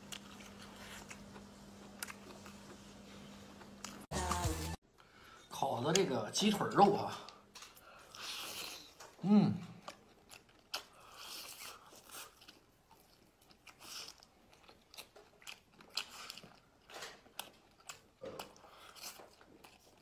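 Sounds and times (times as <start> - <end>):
person chewing meat: 0.0 - 2.8, 7.5 - 20.0.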